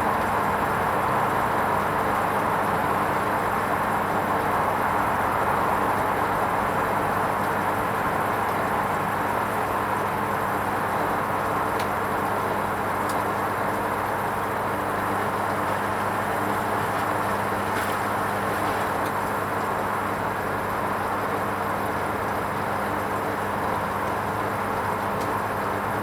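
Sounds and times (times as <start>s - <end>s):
washing machine running: 0.0s - 26.0s.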